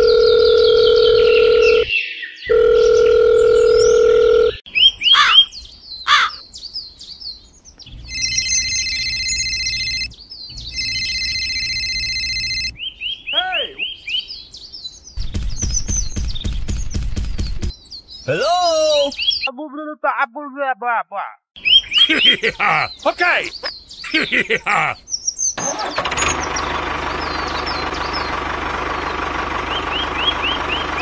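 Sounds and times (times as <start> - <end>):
mobile phone ringing: 0.0 - 1.9, 2.5 - 4.6, 8.0 - 10.1, 10.7 - 12.7
telephone dial tone: 0.0 - 1.9, 2.5 - 4.6, 8.1 - 10.1, 10.8 - 12.7
birds chirping: 0.0 - 19.8, 21.6 - 31.0.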